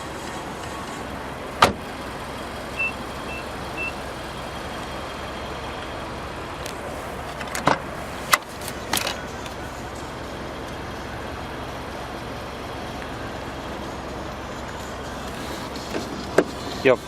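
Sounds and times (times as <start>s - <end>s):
car door shutting: 1.6s - 1.9s, 7.3s - 9.2s, 15.3s - 16.8s
car beeps: 2.7s - 4.1s.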